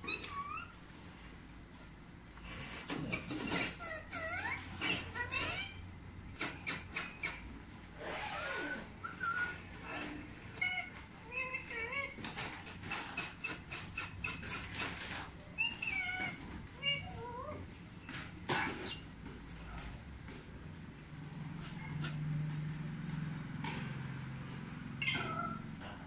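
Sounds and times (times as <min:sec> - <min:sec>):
bird chirping: 0:06.3 - 0:07.5, 0:12.3 - 0:16.0, 0:17.6 - 0:22.9.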